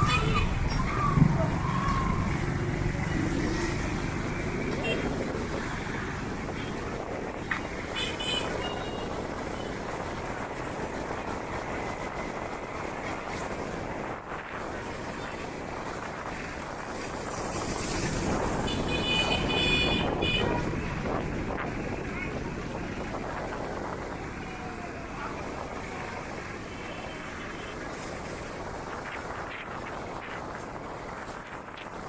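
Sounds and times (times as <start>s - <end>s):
vehicle and road noise: 0.0s - 32.0s.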